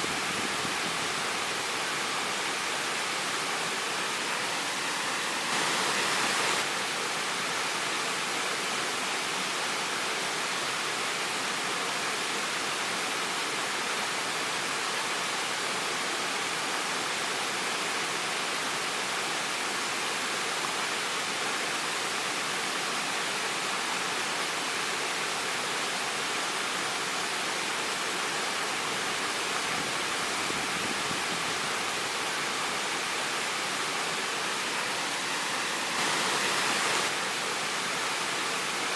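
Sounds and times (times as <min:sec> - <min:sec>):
waterfall splashing: 0:00.0 - 0:06.9, 0:26.9 - 0:38.9.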